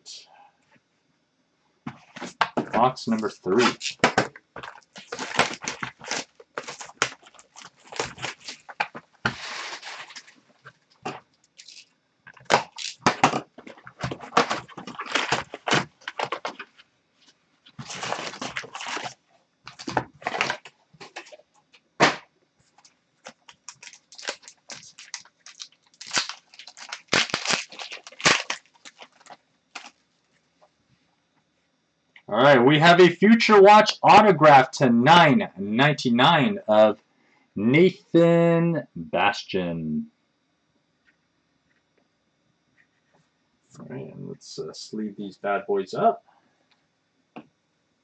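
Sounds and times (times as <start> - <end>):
cards being handled: 1.9 - 10.4, 17.8 - 21.4, 22.8 - 30.0
wrappers crinkling and tearing: 3.1 - 16.7, 17.8 - 21.4, 22.8 - 30.0.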